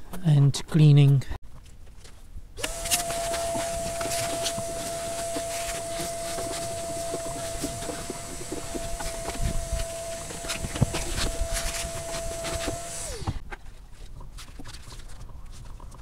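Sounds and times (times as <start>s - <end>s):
electric power tool motor running: 2.6s - 13.4s.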